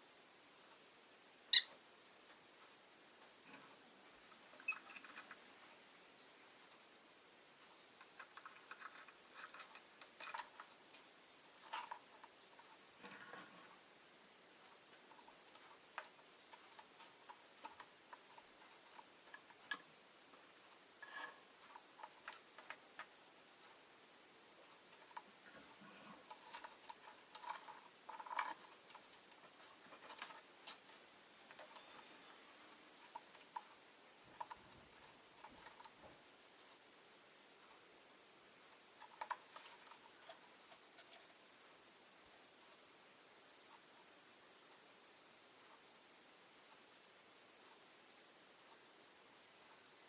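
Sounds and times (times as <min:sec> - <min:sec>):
bird clicking and ticking: 0:01.5 - 0:01.8, 0:07.6 - 0:13.4, 0:14.6 - 0:23.9, 0:24.5 - 0:36.8, 0:38.7 - 0:41.4
bird pecking in cage: 0:08.0 - 0:13.8.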